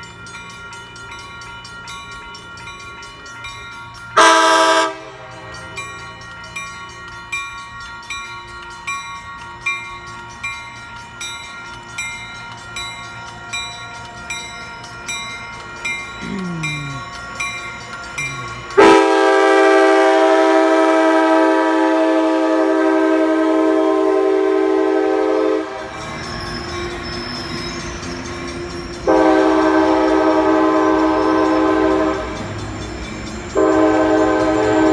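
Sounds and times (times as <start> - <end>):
train air horn chord: 4.2 - 5.3, 18.3 - 26.0, 29.1 - 32.4, 33.6 - 34.9
bell dinging: 5.3 - 19.1.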